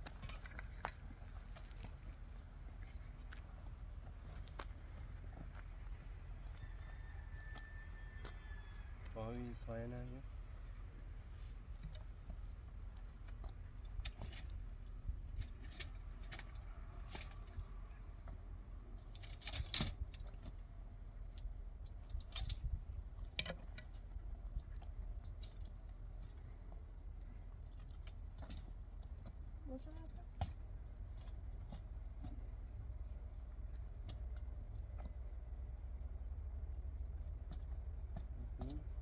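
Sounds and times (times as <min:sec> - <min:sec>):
steady low hum: 0:08.9 - 0:39.0.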